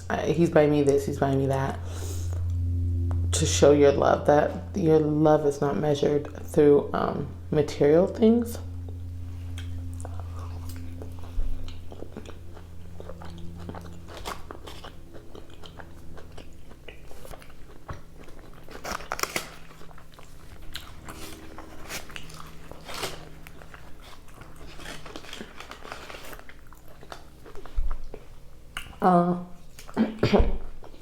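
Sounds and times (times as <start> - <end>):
person chewing food: 8.8 - 29.0, 30.6 - 31.0.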